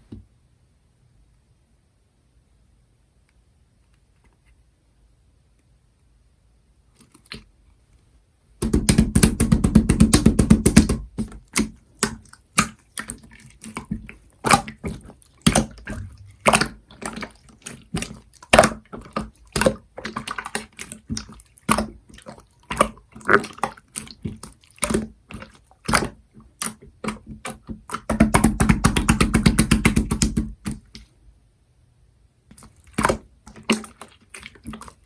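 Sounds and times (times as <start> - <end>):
slime squelching: 8.6 - 31.0, 32.5 - 35.0.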